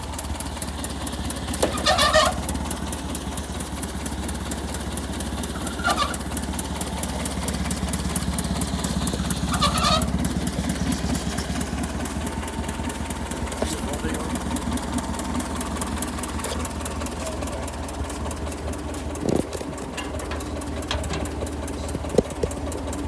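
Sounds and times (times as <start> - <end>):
tractor engine idling: 0.0 - 23.0
chicken calling: 8.9 - 11.8.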